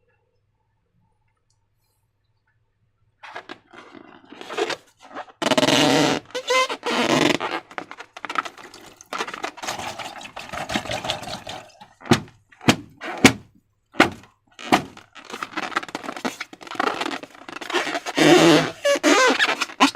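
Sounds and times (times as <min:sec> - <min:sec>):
rubbery balloon squeaks: 0:03.2 - 0:19.9
slime squelching: 0:06.4 - 0:19.8.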